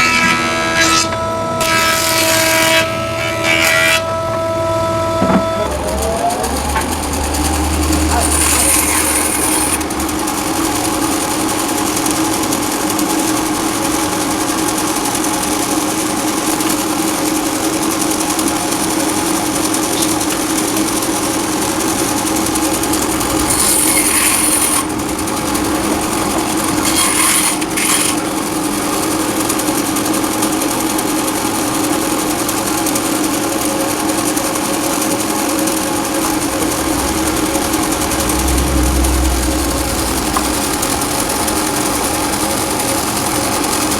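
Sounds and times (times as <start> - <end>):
wood lathe motor hum: 0.0 - 43.9
turning tool scraping wood: 7.8 - 10.0, 21.8 - 28.7.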